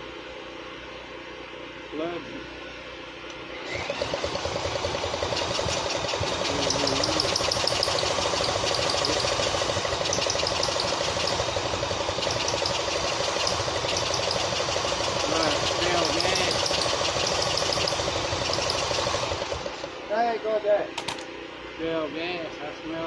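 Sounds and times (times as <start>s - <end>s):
tractor engine starting and running: 3.6s - 20.0s.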